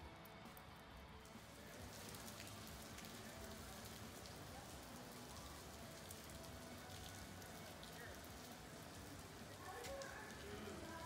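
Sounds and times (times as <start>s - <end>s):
rain on wet pavement: 1.2s - 11.0s.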